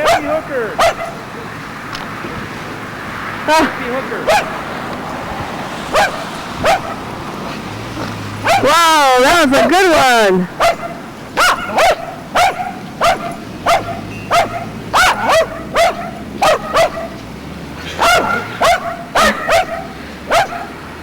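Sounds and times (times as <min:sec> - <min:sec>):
dog barking: 0:00.0 - 0:01.2, 0:04.2 - 0:04.6, 0:05.9 - 0:07.0, 0:08.4 - 0:08.8, 0:10.5 - 0:17.2, 0:17.9 - 0:20.8.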